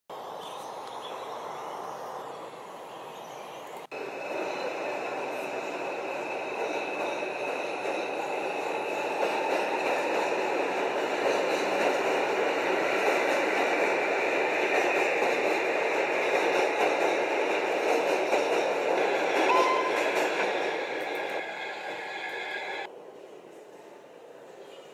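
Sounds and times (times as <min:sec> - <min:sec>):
train wheels rumbling on rails: 0:03.8 - 0:22.9.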